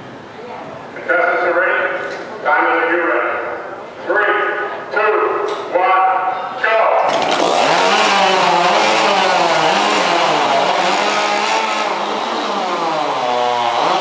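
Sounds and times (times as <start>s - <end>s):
chainsaw engine at full throttle: 7.1s - 14.0s.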